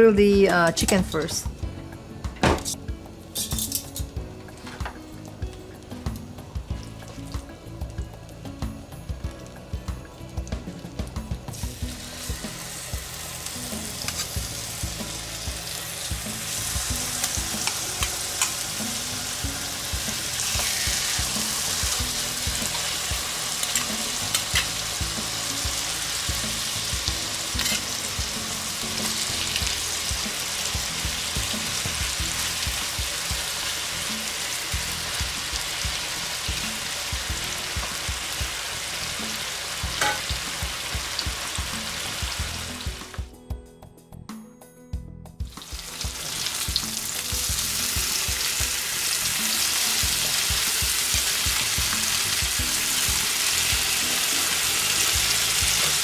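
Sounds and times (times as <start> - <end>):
chicken sizzling in a frying pan: 9.4 - 43.2, 45.5 - 56.0
utensil clicking against pan: 17.2 - 18.8.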